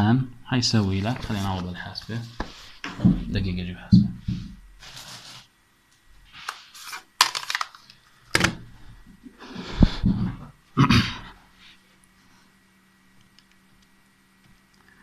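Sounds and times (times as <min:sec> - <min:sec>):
rustling: 0:04.0 - 0:05.5
rummaging objects on desk: 0:04.2 - 0:05.5.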